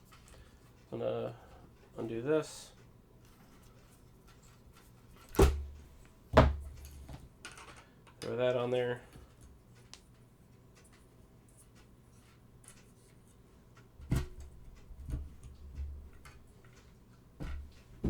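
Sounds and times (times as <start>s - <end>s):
faint plastic ticks: 9.1s - 17.0s.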